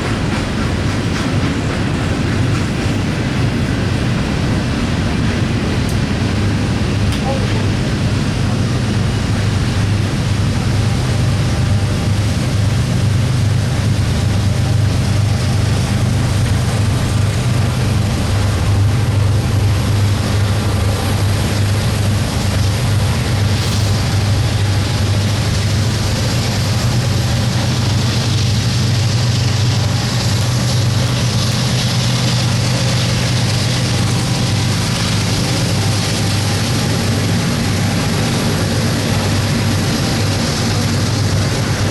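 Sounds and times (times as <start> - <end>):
broad rushing noise: 0.0 - 41.9
locomotive engine drone: 0.0 - 41.9.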